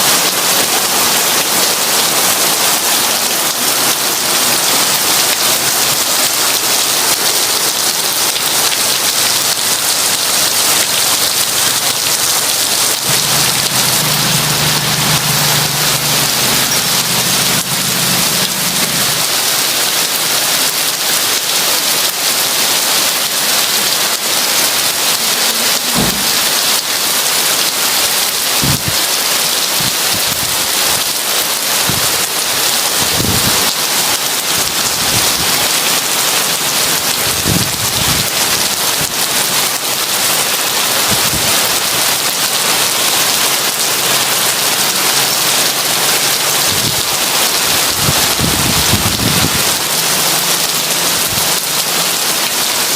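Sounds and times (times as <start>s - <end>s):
heavy rain falling: 0.0s - 52.9s
thunder rumbling: 11.1s - 19.5s.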